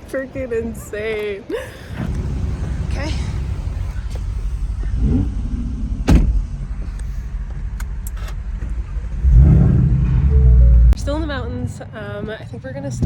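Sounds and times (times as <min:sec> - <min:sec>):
car engine rumbling: 0:00.0 - 0:13.0
sharp pop: 0:06.0 - 0:06.4.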